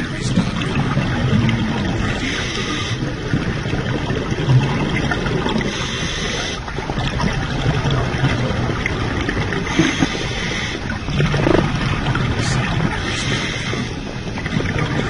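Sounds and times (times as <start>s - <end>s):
exhaled air bubbling: 0.0s - 15.0s
regulator inhale hiss: 2.2s - 3.0s, 5.7s - 6.6s, 9.7s - 10.9s, 13.1s - 14.0s.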